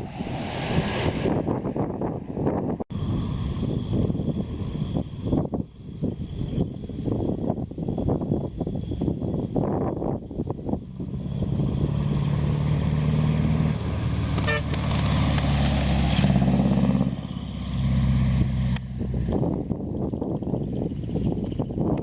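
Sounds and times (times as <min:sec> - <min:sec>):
truck diesel engine driving past: 0:10.8 - 0:19.4.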